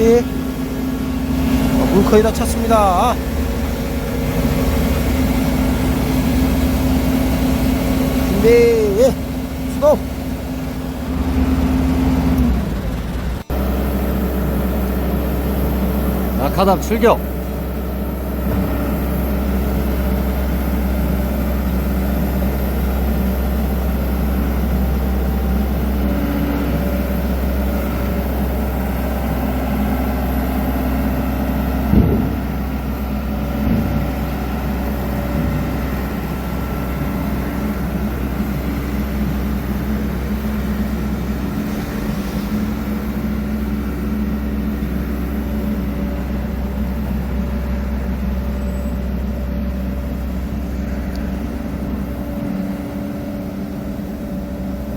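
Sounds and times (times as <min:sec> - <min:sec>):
diesel road roller engine: 0:00.0 - 0:54.9
sharp thump: 0:31.9 - 0:32.5.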